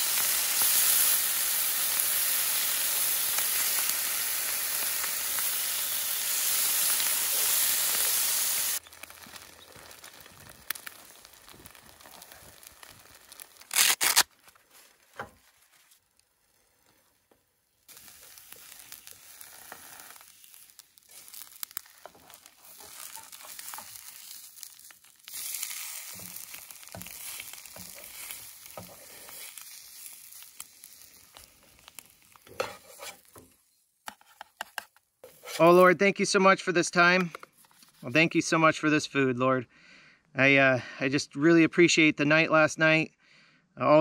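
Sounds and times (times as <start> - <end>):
bacon sizzling in a pan: 0.0 - 14.2, 17.9 - 33.6.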